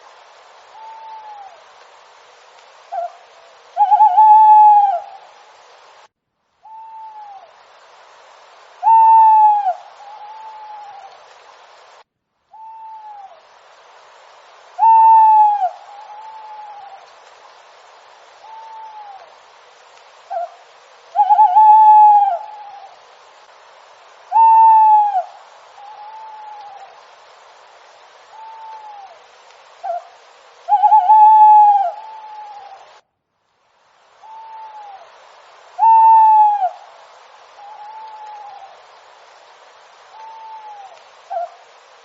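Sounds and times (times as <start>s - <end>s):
steady hiss: 0.0s - 42.0s
owl calling: 0.7s - 1.7s, 2.9s - 5.3s, 6.6s - 7.5s, 8.8s - 11.2s, 12.5s - 13.4s, 14.8s - 17.1s, 18.4s - 19.3s, 20.3s - 23.0s, 24.3s - 27.0s, 28.3s - 32.9s, 34.2s - 35.1s, 35.8s - 36.9s, 37.6s - 38.8s, 40.1s - 41.6s.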